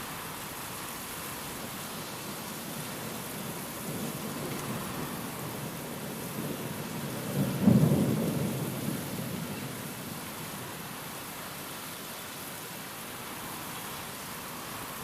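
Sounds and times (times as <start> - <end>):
steady rain: 0.0 - 15.0
thunder rumble: 3.4 - 10.2.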